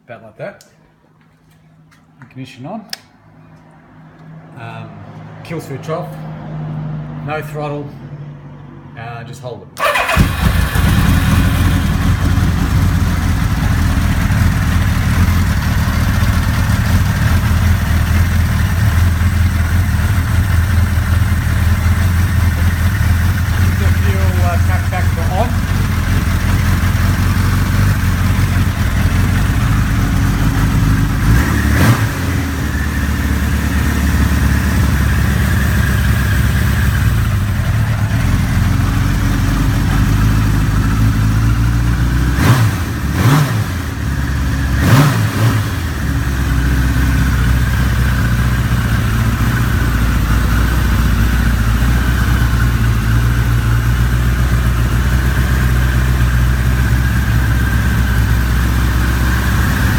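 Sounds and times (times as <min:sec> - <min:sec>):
motorcycle engine idling and revving: 0:09.8 - 0:59.9.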